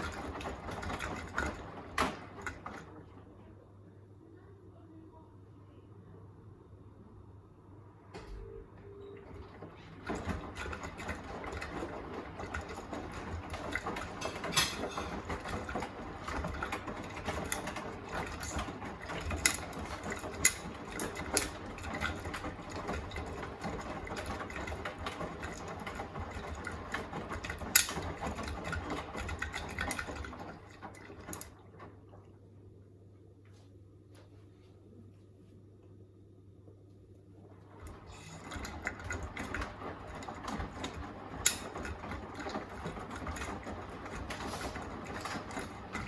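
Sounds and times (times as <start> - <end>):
washing machine drum tumbling: 0.0 - 3.2, 8.1 - 32.6, 37.4 - 46.0
sharp knocks in washing machine: 10.0 - 30.3.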